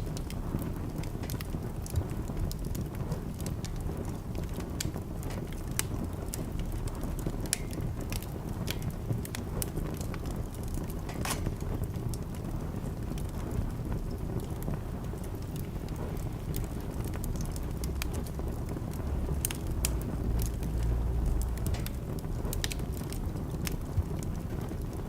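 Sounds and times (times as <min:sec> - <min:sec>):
burning logs crackling and popping: 0:00.0 - 0:25.0
wood fire flames rumbling: 0:00.0 - 0:25.0.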